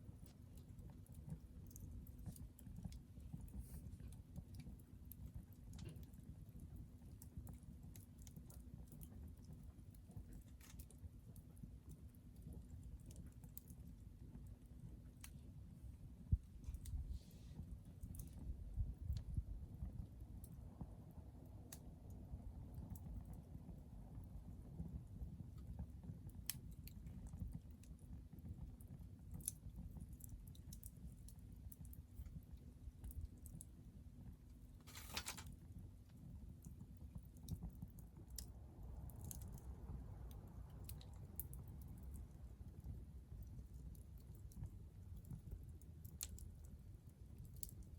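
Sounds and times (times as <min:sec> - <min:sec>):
fire crackling with small pops: 0:00.0 - 0:47.9
low steady rumble: 0:00.0 - 0:47.9
fire pops: 0:34.7 - 0:46.8.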